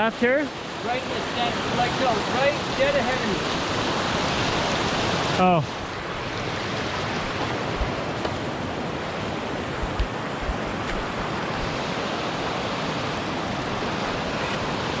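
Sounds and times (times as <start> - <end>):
whitewater rapids rushing: 0.0 - 15.0.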